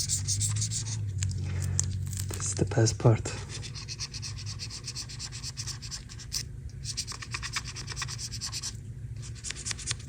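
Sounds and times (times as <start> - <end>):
scrubbing strokes on casing: 0.0 - 1.1.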